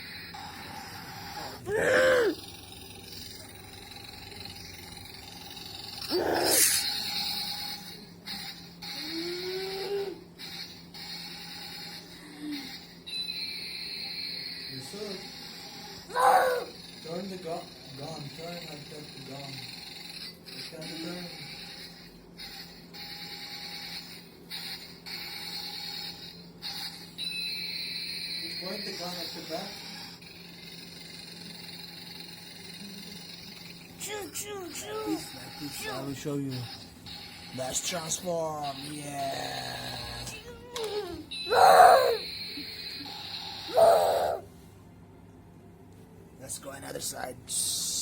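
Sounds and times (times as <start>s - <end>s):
loud voice-like cry: 1.6s - 2.4s, 6.1s - 6.8s, 16.1s - 16.8s, 40.8s - 42.2s, 43.7s - 44.4s
toy electric motor whirring: 2.4s - 44.4s
toy tank motor whirring: 14.8s - 26.0s, 28.7s - 36.4s.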